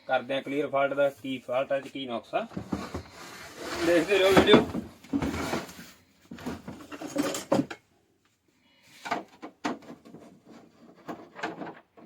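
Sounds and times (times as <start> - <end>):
objects knocking and clattering: 2.5 - 7.9, 9.0 - 12.0.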